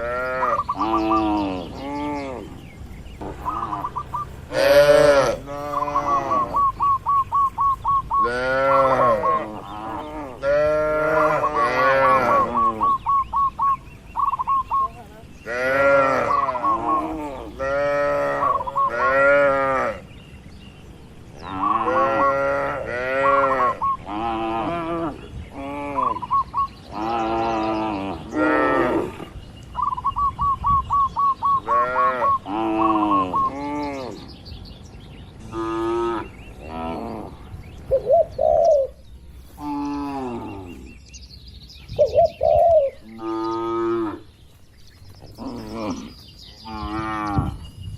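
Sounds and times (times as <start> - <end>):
cattle mooing: 4.5 - 6.8, 8.2 - 13.0, 15.5 - 20.0, 21.5 - 26.2.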